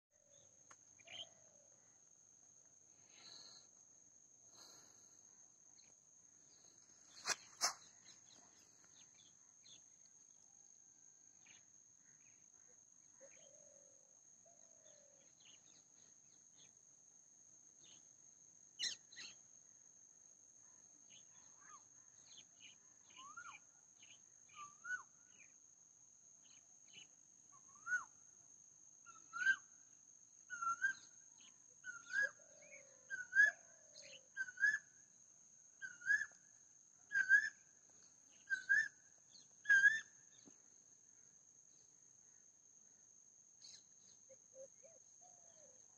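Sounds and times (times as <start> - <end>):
bird calling: 35.8 - 36.4, 37.1 - 40.5.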